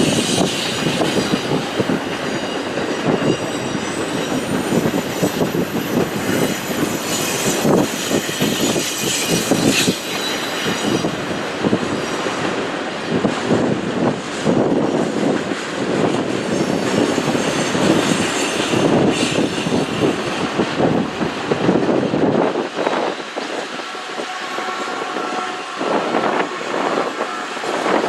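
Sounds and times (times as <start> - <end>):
high wheel squeal: 0.0 - 11.2, 16.4 - 20.6
freight train wheels rumbling: 0.0 - 28.0.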